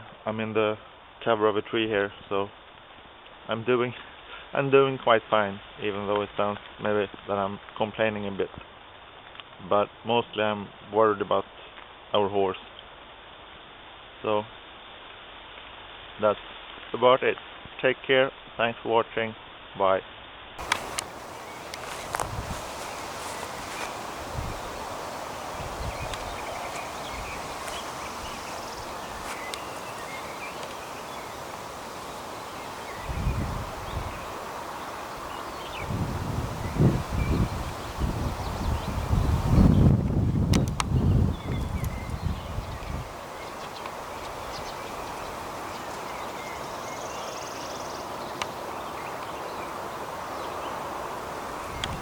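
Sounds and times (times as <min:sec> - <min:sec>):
faint chirps: 0:20.6 - 0:36.0
rain falling on leaves and grass: 0:20.6 - 0:52.0
wind rumbling on microphone: 0:20.6 - 0:52.0
soft low thumps: 0:20.7 - 0:24.8.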